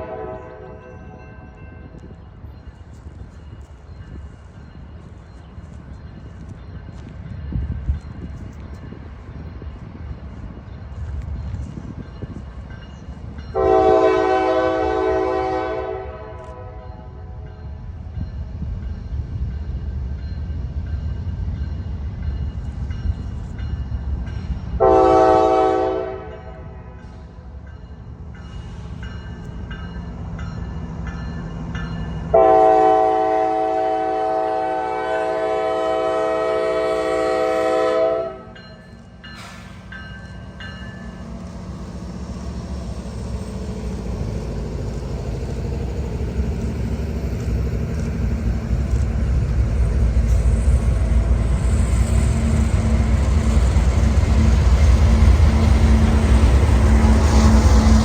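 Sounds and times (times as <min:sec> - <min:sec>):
locomotive air horn blast: 0:00.0 - 0:00.8, 0:13.6 - 0:17.2, 0:24.8 - 0:26.8, 0:32.3 - 0:38.6
locomotive rumble: 0:00.0 - 0:58.0.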